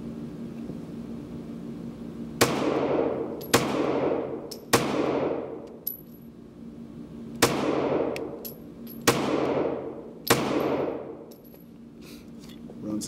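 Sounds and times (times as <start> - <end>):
pistol shots echoing: 2.4 - 5.6, 7.4 - 8.4, 9.0 - 11.2
faint metallic clinks: 11.3 - 11.8.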